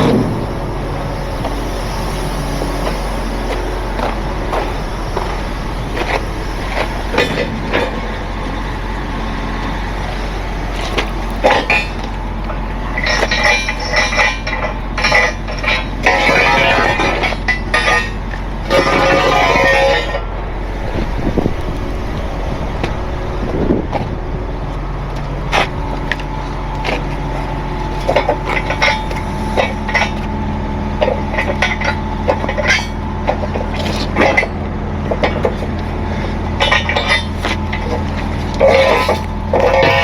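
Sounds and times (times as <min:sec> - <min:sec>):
truck engine idling: 0:00.0 - 0:40.0.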